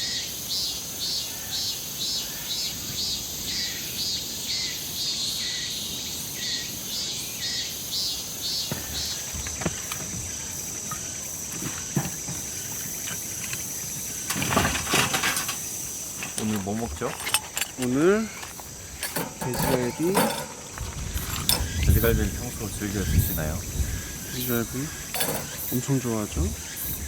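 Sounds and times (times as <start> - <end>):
insects chirping: 0.0 - 27.0
knocks and clatter: 8.9 - 22.4, 25.1 - 26.4.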